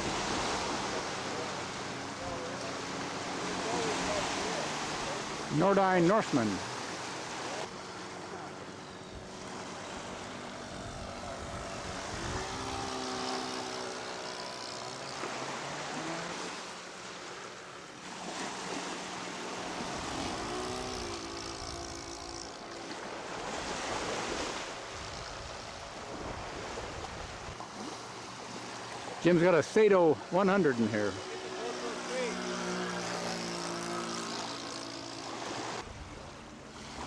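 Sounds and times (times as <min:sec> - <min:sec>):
rush of wind and water: 0:00.0 - 0:14.2, 0:15.1 - 0:32.1
model plane engine flying by: 0:00.0 - 0:37.0.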